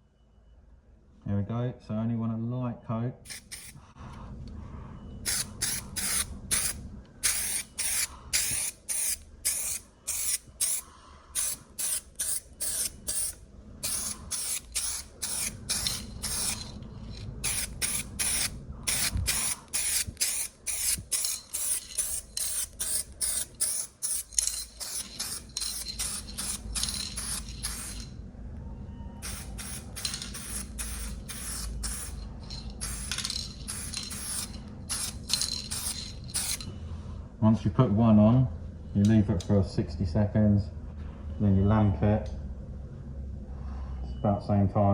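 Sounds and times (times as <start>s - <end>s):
spray gun hissing bursts: 5.3s - 10.8s, 11.4s - 16.6s, 29.2s - 32.2s.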